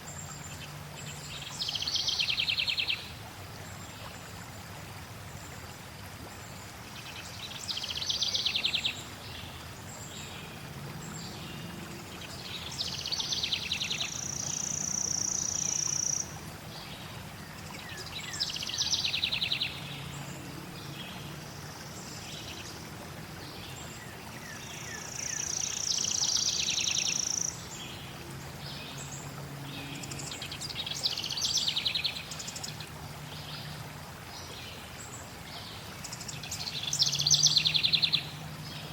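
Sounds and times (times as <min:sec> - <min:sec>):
flowing water: 0:00.0 - 0:38.9
songbirds trilling: 0:09.9 - 0:22.8.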